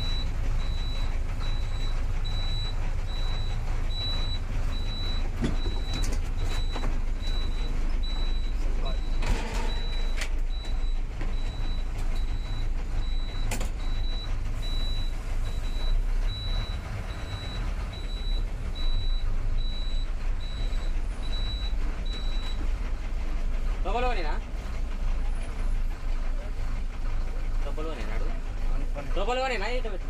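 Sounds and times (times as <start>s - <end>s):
reversing alarm beeping: 0.0s - 22.8s
diesel engine rumbling: 0.0s - 30.0s.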